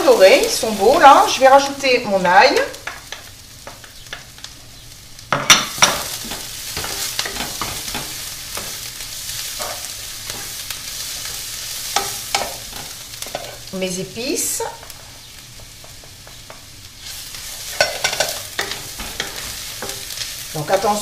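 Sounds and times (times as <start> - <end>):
onions frying in oil: 0.0 - 21.0
spatula scraping a pan: 5.8 - 13.7, 17.0 - 20.4.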